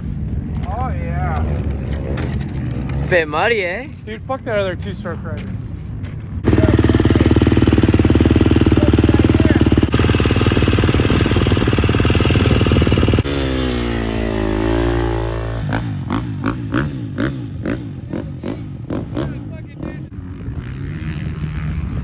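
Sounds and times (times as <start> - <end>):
dirt bike engine revving: 6.4 - 22.0.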